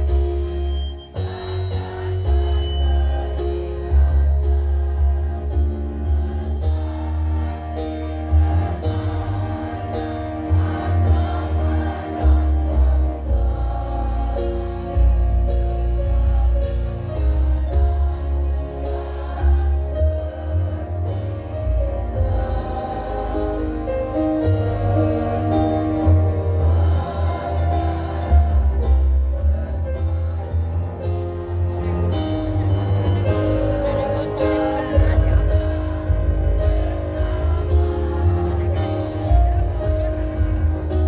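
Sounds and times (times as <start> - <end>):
heavy bass line: 0.0 - 41.0
women's choir singing: 1.2 - 41.0.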